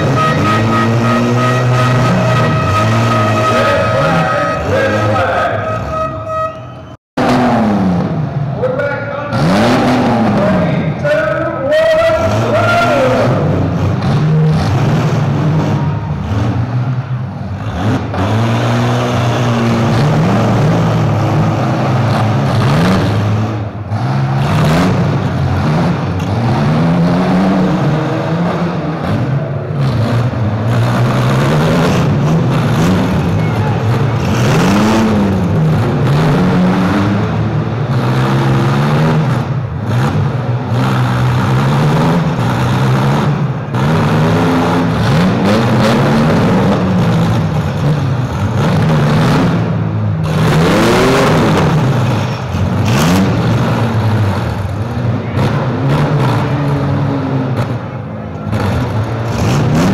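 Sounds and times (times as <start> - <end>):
engines revving: 0.0 - 6.4, 7.2 - 59.9
vehicles colliding crunch: 13.5 - 59.9.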